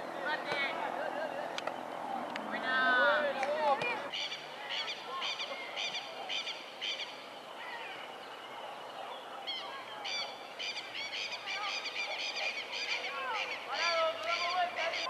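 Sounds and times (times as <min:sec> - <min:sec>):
birds calling rapid high notes: 0:04.1 - 0:15.0.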